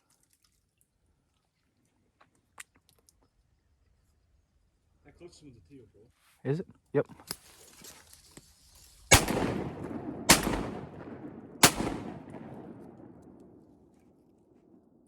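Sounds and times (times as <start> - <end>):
shotgun shots echoing: 9.1 - 14.1.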